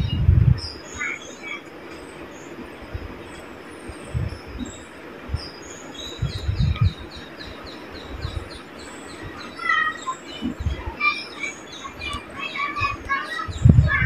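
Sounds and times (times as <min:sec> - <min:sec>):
dull low thumps: 0:00.0 - 0:00.7, 0:04.1 - 0:04.7, 0:06.2 - 0:07.1, 0:12.8 - 0:14.0
small birds chirping: 0:00.0 - 0:14.0.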